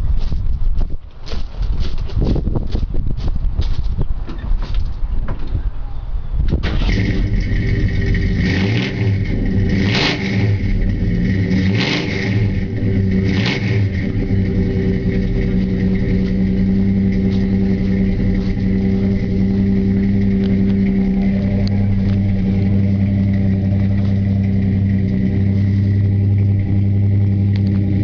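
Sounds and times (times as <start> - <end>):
car engine surging and idling: 6.7 - 28.0.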